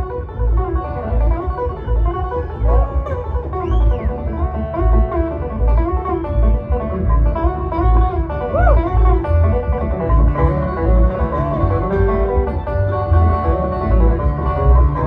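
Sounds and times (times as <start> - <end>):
banjo picking: 0.0 - 15.0
bluegrass band playing: 0.0 - 15.0.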